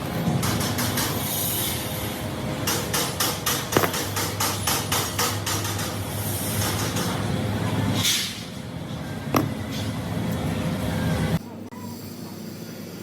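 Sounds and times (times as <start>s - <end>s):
fast hammering on metal: 2.7s - 5.9s.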